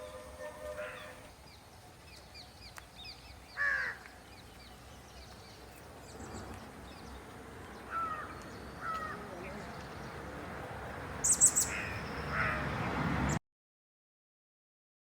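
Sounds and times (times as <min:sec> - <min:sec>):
loud harsh bird call: 0:00.0 - 0:01.3, 0:03.5 - 0:04.1, 0:07.9 - 0:09.7, 0:11.2 - 0:12.8
faint high bird chirps: 0:11.2 - 0:12.4.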